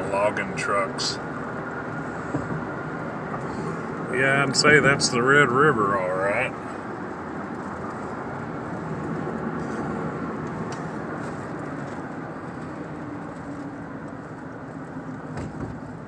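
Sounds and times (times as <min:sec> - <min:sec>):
truck road and engine noise: 0:00.0 - 0:16.0.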